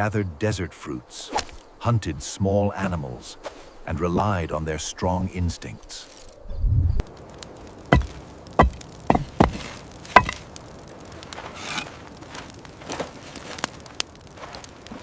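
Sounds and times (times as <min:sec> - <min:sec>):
sharp chopping knocks: 0:08.0 - 0:10.4.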